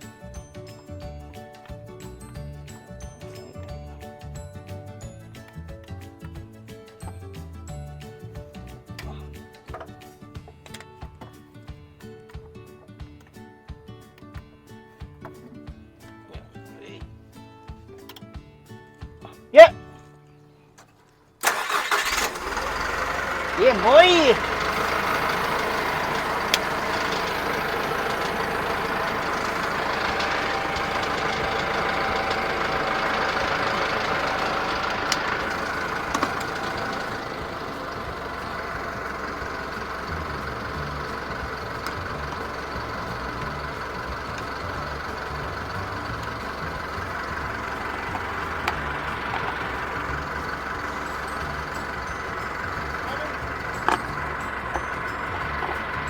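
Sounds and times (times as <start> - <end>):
truck engine idling: 21.4 - 56.0.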